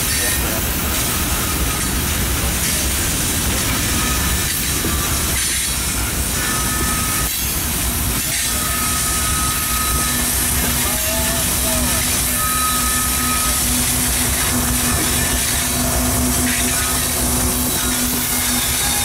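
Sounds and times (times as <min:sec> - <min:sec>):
rumble of wheels on rail: 0:00.0 - 0:19.0
high wheel squeal: 0:03.6 - 0:07.6, 0:08.2 - 0:19.0.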